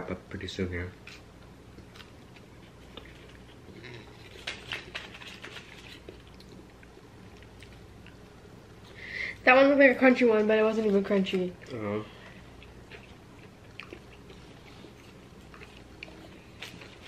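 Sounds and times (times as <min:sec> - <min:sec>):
faint chewing: 0:00.9 - 0:09.0, 0:10.4 - 0:17.0
foil wrapping crinkling: 0:04.2 - 0:06.1.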